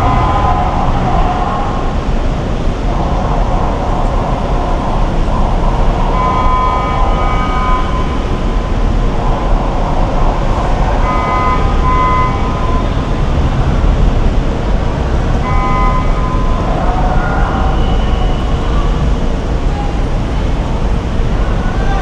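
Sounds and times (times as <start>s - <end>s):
steady high tone: 0.0s - 3.9s
road and engine noise: 0.0s - 22.0s.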